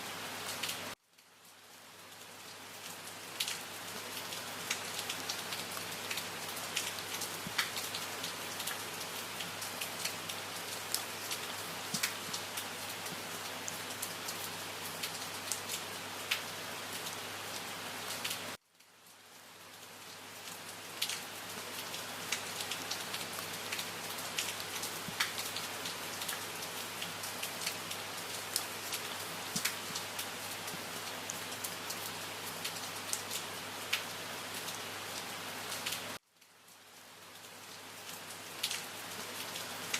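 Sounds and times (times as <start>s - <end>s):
steady rain: 0.0s - 39.9s
raindrops clicking: 28.6s - 29.9s.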